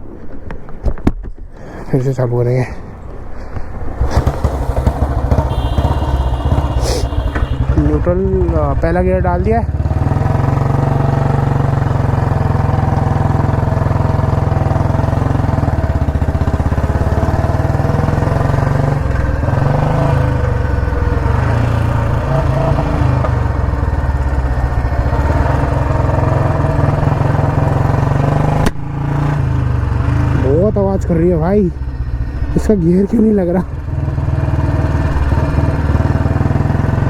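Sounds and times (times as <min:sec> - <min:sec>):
motorcycle engine thumping: 0:03.1 - 0:11.0, 0:13.4 - 0:27.3.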